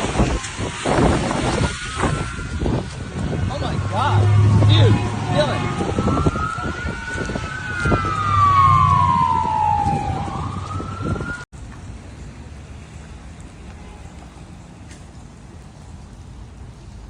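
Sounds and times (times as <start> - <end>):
siren wailing: 0.0 - 11.5
steady rushing noise: 0.0 - 17.0
wind noise rumble: 0.0 - 17.0.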